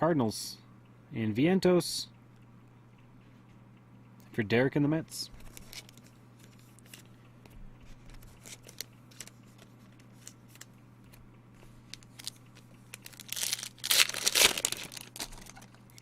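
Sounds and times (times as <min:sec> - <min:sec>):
foil card pack ripping: 0:11.9 - 0:16.0.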